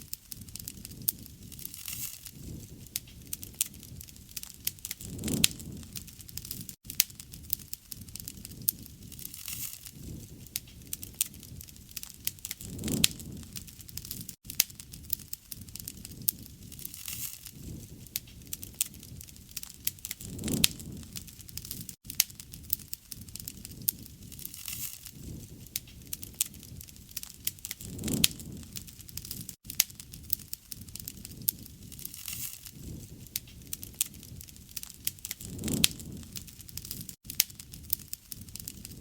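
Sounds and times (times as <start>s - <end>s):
campfire crackling: 0.0s - 39.0s
low rush of flames: 0.0s - 39.0s.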